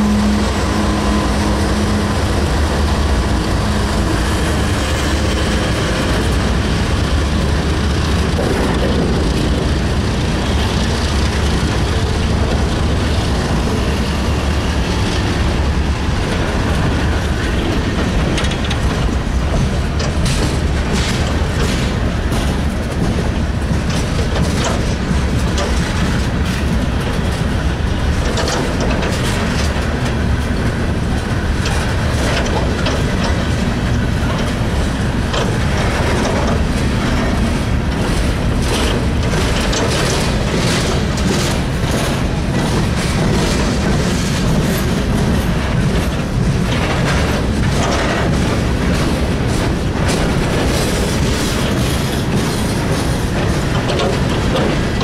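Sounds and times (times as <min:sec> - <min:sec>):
steel wheels rumbling on rail: 0:00.0 - 0:55.0
wheels clacking over rail joints: 0:00.0 - 0:55.0.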